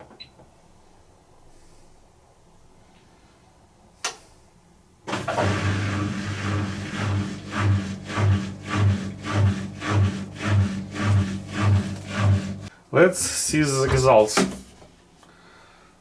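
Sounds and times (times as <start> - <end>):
washing machine humming and pulsing: 5.1 - 12.7.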